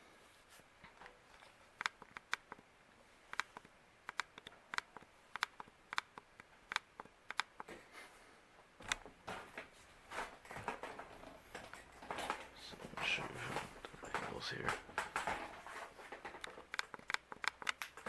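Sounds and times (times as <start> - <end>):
ceiling fan ticking: 1.8 - 7.7.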